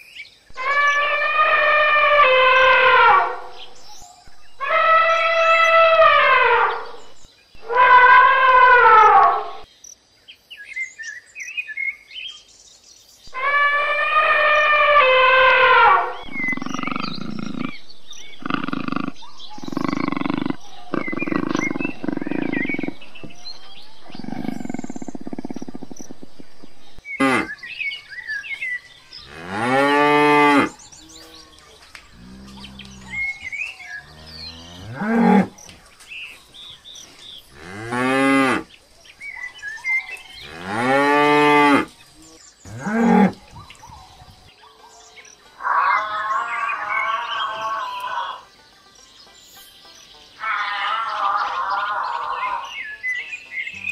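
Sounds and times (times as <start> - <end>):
buffalo bellowing: 0.5 - 9.6, 13.3 - 27.5, 32.1 - 35.6, 42.7 - 43.4
leopard growling: 15.1 - 27.5, 30.5 - 35.6.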